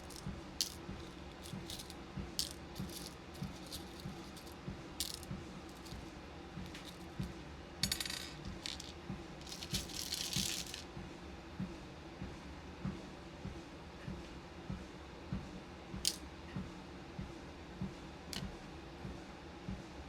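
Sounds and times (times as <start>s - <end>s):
beads clicking and rattling: 0.0s - 10.8s
walking pad hum: 0.0s - 10.8s.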